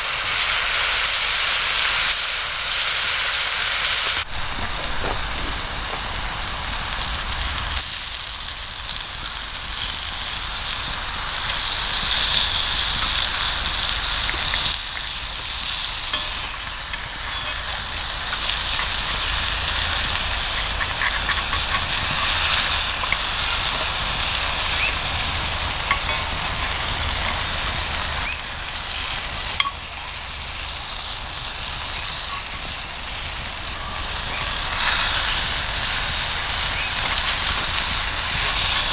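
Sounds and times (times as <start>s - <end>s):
food sizzling in a skillet: 0.0s - 38.9s
campfire pops and crackles: 4.2s - 28.6s.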